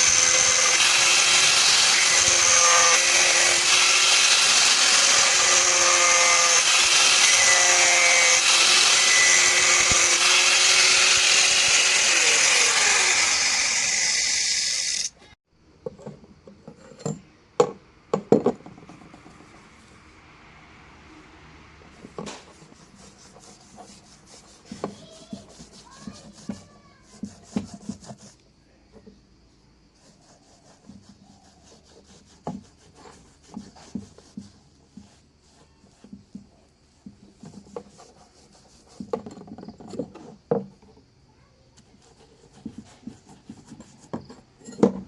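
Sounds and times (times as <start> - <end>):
power tool rasping wood: 0.0 - 15.2, 22.2 - 28.3.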